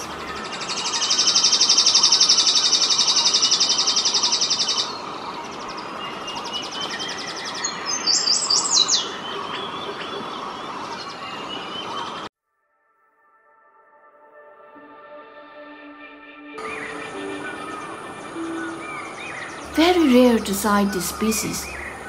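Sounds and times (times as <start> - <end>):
forest background: 0.0 - 13.6, 14.3 - 22.0
bird high falling notes: 16.6 - 22.0
bird high trill: 16.6 - 22.0.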